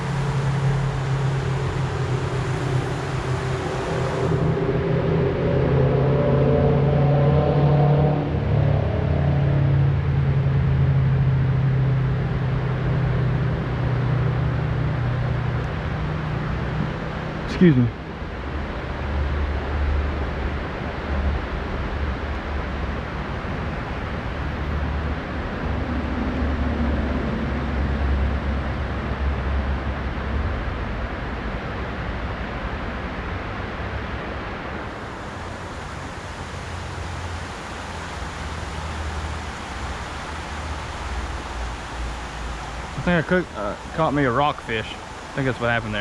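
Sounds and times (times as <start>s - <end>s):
river rushing over rocks: 34.5s - 46.0s.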